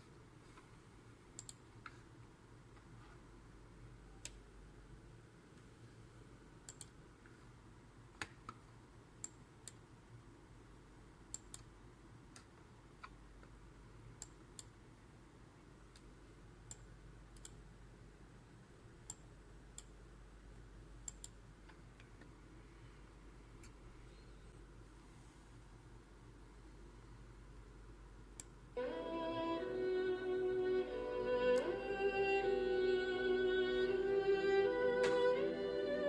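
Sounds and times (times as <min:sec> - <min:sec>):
faint steady hum: 0:00.0 - 0:36.0
sharp clicks: 0:01.4 - 0:01.7, 0:06.7 - 0:07.0.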